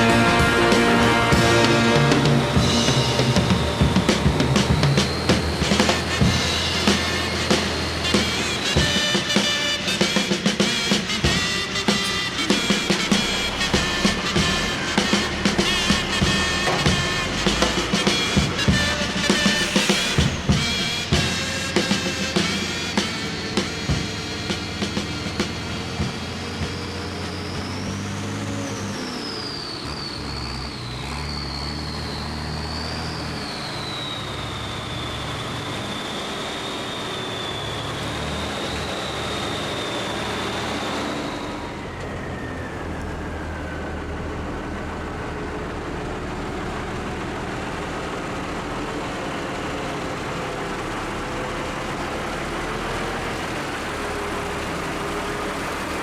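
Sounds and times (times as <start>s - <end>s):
high wavering whine: 0.0s - 26.2s
truck engine running: 0.0s - 56.0s.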